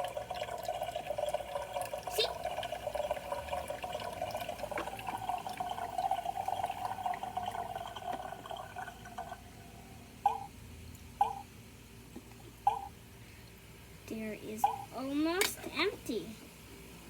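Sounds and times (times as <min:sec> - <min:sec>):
water drips: 0:00.0 - 0:09.4
toy coffee maker trickling water: 0:00.0 - 0:10.5, 0:14.1 - 0:16.3.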